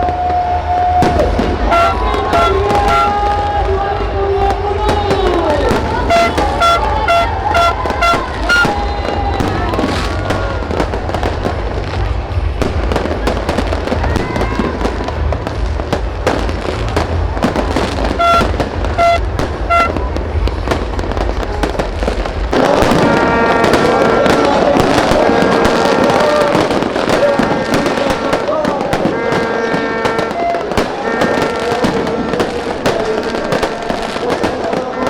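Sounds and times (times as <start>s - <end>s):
fireworks bangs: 0.0s - 35.0s
heavy low rumble: 1.0s - 25.8s
sustained pitched tones: 1.6s - 3.4s, 5.7s - 10.1s, 17.7s - 20.3s.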